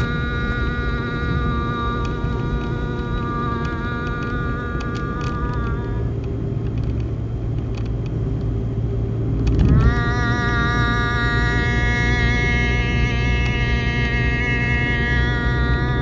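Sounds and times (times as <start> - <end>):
person singing held tone: 0.0 - 6.2, 9.8 - 16.0
low rumble: 0.0 - 16.0.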